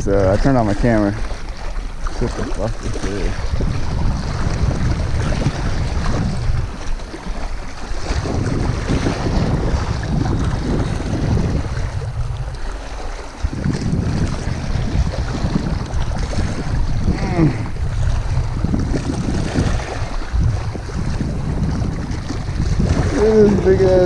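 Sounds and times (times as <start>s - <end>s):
wind on microphone: 0.0s - 24.0s.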